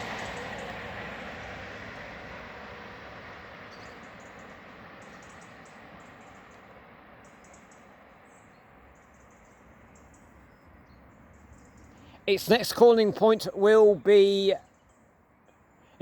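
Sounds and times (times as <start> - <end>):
electric trains rumbling: 0.0 - 14.6
small birds chirping: 3.7 - 16.0.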